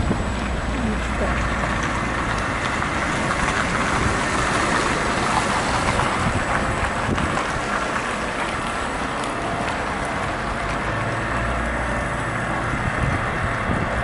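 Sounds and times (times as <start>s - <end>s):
wind rushing over microphone: 0.0s - 0.8s, 1.4s - 10.1s, 12.3s - 14.0s
tyre rolling on pavement: 0.0s - 14.0s.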